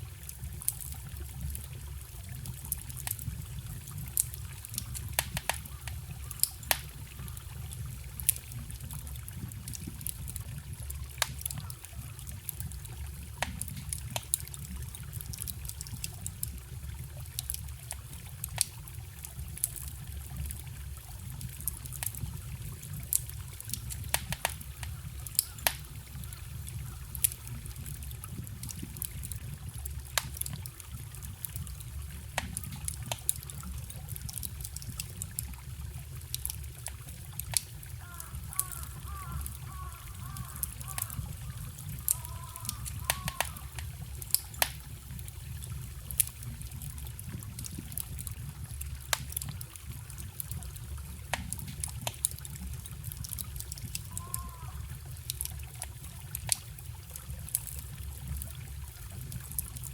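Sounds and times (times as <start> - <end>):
campfire crackling: 0.0 - 59.9
wood popping in fire: 0.0 - 59.9
forest stream rushing: 36.8 - 46.2.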